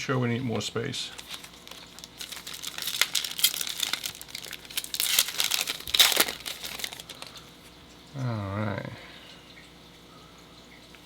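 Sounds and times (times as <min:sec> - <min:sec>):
card pack wrappers crinkling: 0:00.9 - 0:07.5.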